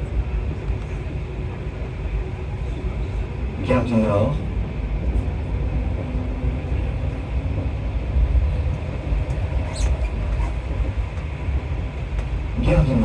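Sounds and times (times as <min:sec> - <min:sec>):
metro train rumbling: 0:00.0 - 0:13.0
high train squeal: 0:09.2 - 0:11.0.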